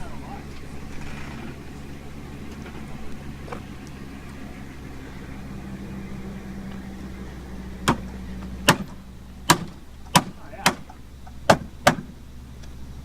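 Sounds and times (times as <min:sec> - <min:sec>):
steady low hum: 0:00.0 - 0:13.0
hammer blows on car metal: 0:08.7 - 0:12.1.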